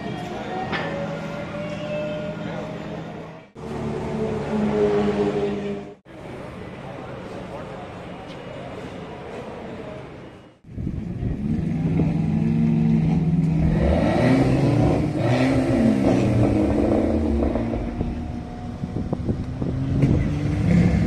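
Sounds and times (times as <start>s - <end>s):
car engine revving: 11.3s - 21.0s.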